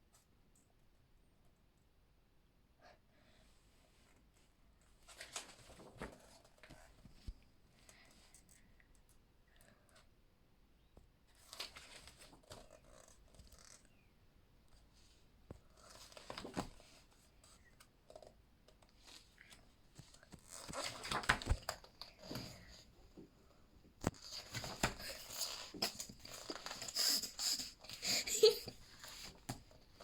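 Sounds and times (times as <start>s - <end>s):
book pages turning: 15.6s - 17.9s, 19.0s - 22.8s, 24.0s - 27.0s.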